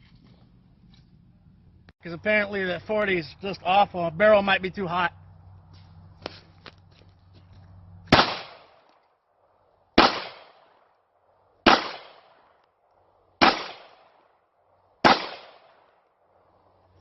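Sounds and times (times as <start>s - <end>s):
handgun shots echoing: 8.1s - 8.9s, 10.0s - 10.7s, 11.7s - 12.4s, 13.4s - 14.2s, 15.0s - 15.8s.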